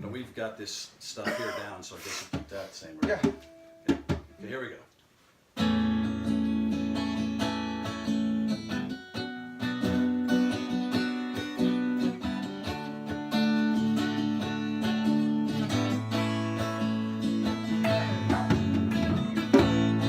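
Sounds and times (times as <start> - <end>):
acoustic guitar strumming: 3.1 - 4.5, 5.6 - 20.0.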